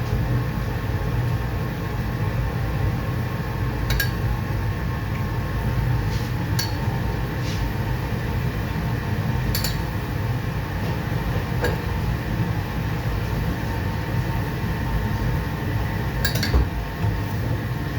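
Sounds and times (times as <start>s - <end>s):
low kitchen rumble: 0.0s - 17.9s
dishes clinking: 3.9s - 4.2s, 6.6s - 6.9s, 9.6s - 9.9s, 16.2s - 16.7s.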